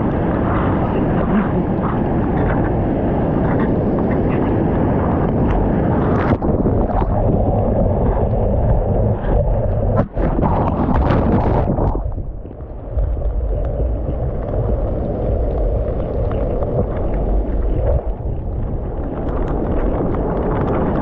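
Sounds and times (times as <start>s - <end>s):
rushing surf: 0.0s - 21.0s
wind buffeting microphone: 0.0s - 21.0s
sharp crackles: 5.2s - 21.0s.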